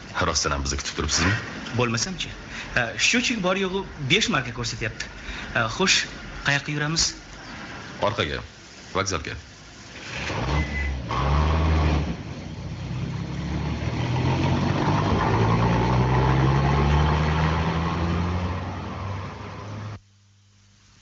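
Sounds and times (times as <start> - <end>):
car engine accelerating: 10.0 - 20.0.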